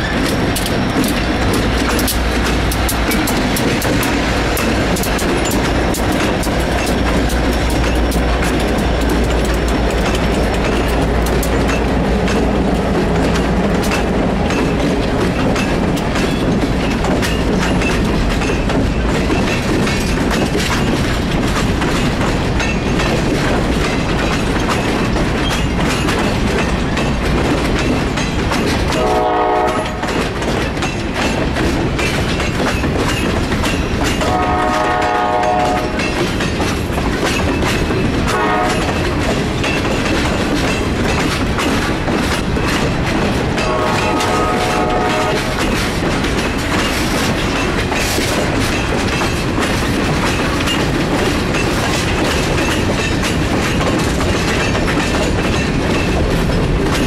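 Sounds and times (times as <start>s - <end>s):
diesel locomotives rumbling: 0.0s - 57.0s
freight car wheels clacking: 0.0s - 57.0s
train horn: 28.9s - 30.2s, 34.2s - 36.0s, 38.3s - 39.0s, 43.6s - 45.7s.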